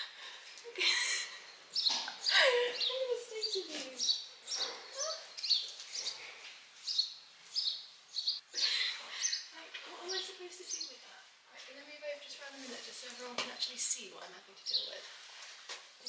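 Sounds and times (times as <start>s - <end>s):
small birds chirping: 0.5s - 15.2s.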